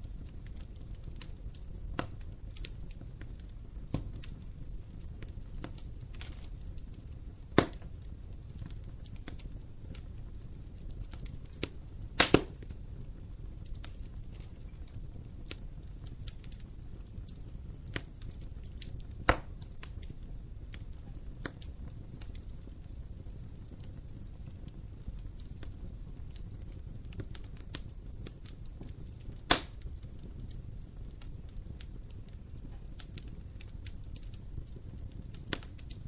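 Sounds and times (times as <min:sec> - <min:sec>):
fireplace flames rumbling: 0:00.0 - 0:36.0
wood fire crackling: 0:00.0 - 0:36.0
loud sharp pops: 0:07.6 - 0:07.8, 0:12.2 - 0:12.6, 0:19.3 - 0:19.5, 0:29.5 - 0:29.8.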